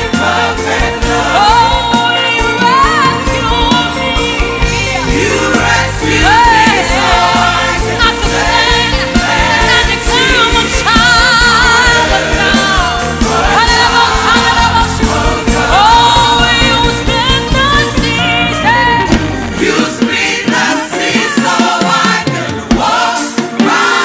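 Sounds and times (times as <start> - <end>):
band with steady beat: 0.0 - 24.0
choir singing: 0.0 - 24.0.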